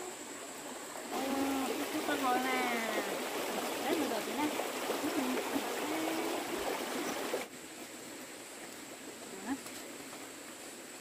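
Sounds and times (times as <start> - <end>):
rushing water: 0.0 - 11.0.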